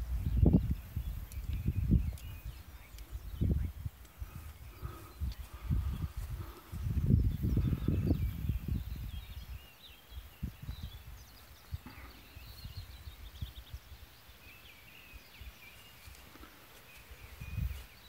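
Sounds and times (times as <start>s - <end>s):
low rumble on microphone: 0.0s - 9.6s
small birds singing: 0.0s - 18.0s.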